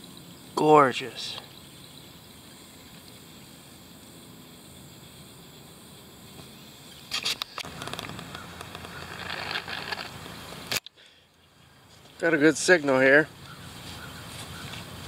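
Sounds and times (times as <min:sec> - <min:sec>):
insects: 0:00.0 - 0:15.0
rustling in dry ground cover: 0:06.3 - 0:10.8, 0:11.4 - 0:15.0.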